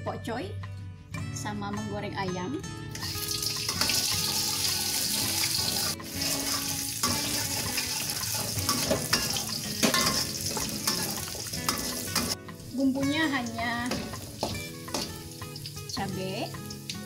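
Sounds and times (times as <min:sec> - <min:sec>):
shallots sizzling in oil: 0:03.0 - 0:17.0
metal spatula scraping a wok: 0:04.8 - 0:12.4.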